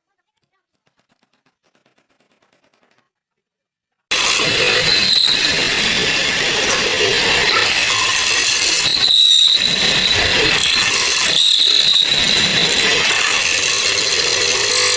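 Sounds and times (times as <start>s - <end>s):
power tool whining on wood: 4.1s - 14.9s.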